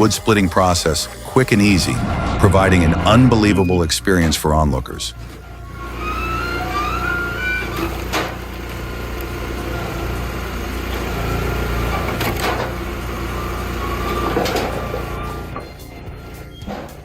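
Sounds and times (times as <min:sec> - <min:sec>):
wood splitter engine running: 0:05.2 - 0:15.5.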